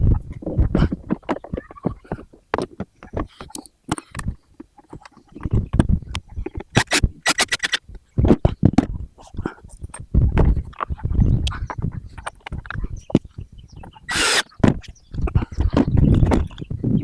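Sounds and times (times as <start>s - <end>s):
irregular knocks and clatter: 0.0s - 7.1s, 7.9s - 14.0s, 14.6s - 16.8s
sharp clicks: 1.1s - 8.9s.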